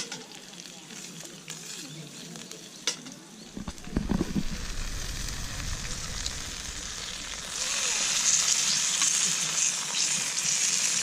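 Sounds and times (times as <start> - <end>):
food sizzling in a pan: 0.0 - 11.0
low rumble: 3.5 - 8.7.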